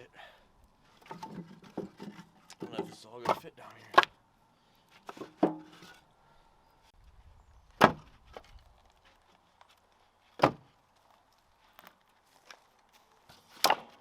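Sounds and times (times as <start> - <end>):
firewood knocking against wood: 1.0 - 4.2, 5.0 - 5.9, 7.8 - 8.5, 10.4 - 10.7.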